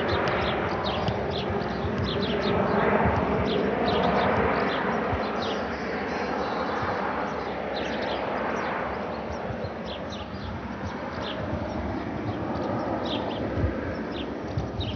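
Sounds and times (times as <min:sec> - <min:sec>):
helicopter rotor and turbine: 0:00.0 - 0:14.9.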